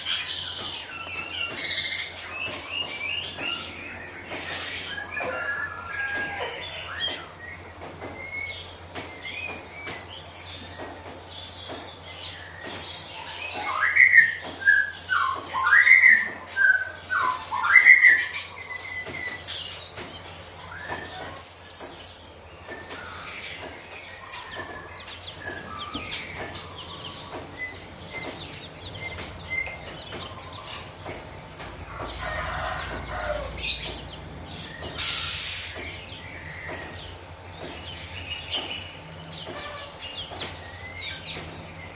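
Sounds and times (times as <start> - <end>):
magpie-robin calling and chirping: 0.0 - 20.0, 33.6 - 41.9.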